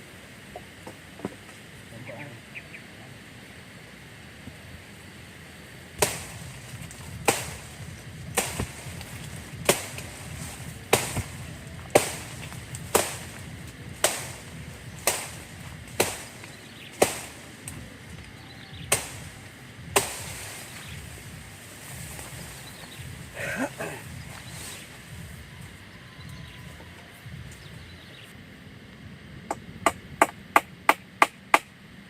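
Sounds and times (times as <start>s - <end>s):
wood being chopped: 6.0s - 20.6s.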